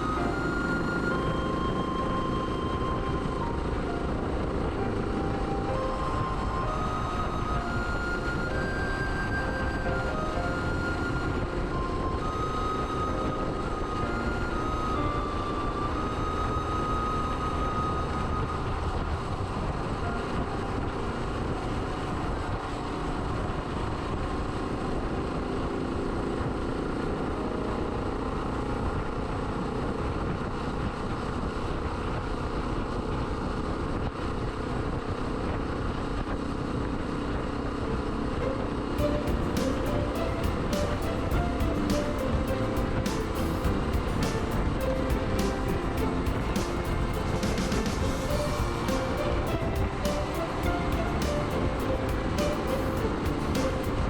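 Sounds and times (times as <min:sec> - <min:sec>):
wind noise: 0:28.8 - 0:54.0
road noise: 0:37.6 - 0:54.0.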